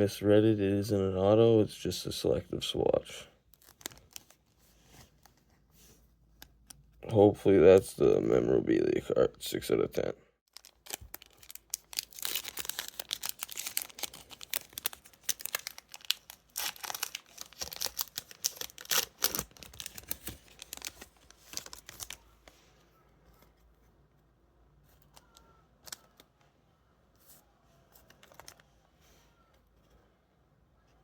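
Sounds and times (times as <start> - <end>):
card pack wrapper tearing: 3.5 - 4.4, 10.5 - 22.3.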